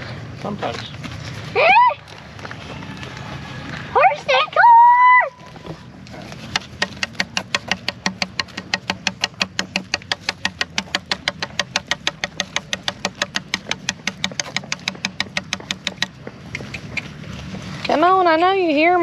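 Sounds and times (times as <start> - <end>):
atv engine idling: 6.5 - 18.5
sharp ticking: 6.6 - 17.2.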